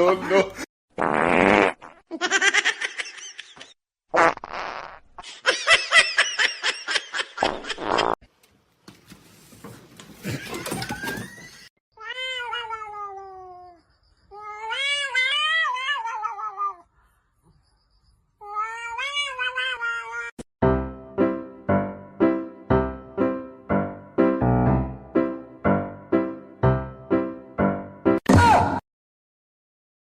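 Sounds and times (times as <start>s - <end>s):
cats meowing and yowling: 12.0s - 16.9s, 18.4s - 20.3s.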